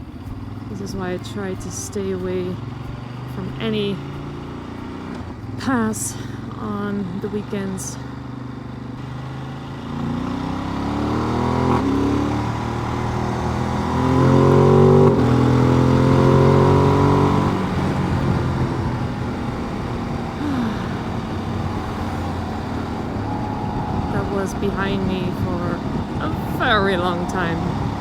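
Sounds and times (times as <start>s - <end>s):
motorcycle engine accelerating: 0.0s - 28.0s
road and wind noise: 0.0s - 28.0s.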